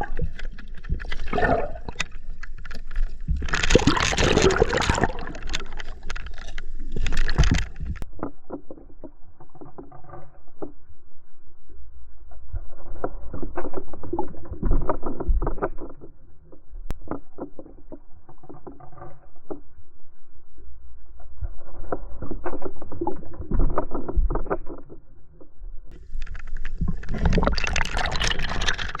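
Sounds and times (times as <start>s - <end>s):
river water sloshing and splashing: 3.4s - 8.0s, 26.7s - 29.0s.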